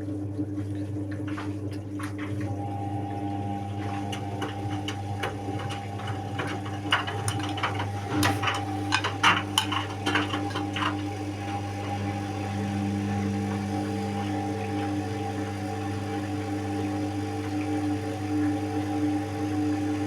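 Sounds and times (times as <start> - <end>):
washing machine motor hum: 0.0 - 20.0
clicks and knocks: 4.1 - 12.0.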